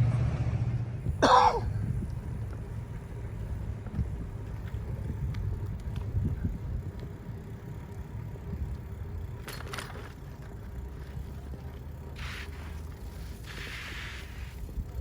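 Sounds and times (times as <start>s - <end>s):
wind rumble: 0.0s - 13.6s
bicycle riding noise: 0.0s - 15.0s
faint ticks: 3.8s - 13.0s.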